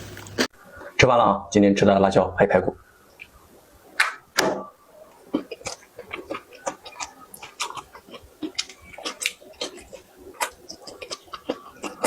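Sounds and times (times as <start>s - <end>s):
chewing with mouth smacks: 5.1s - 12.0s.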